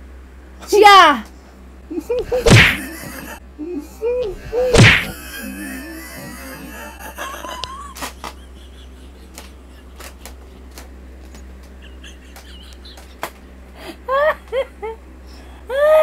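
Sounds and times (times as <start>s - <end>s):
high-pitched laughing squeals: 1.9s - 7.0s.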